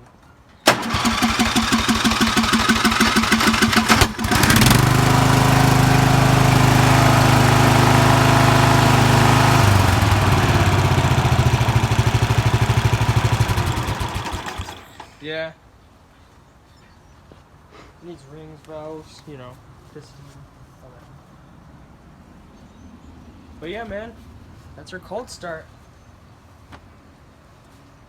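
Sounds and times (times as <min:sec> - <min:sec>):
lawn mower engine running: 0:00.7 - 0:15.2.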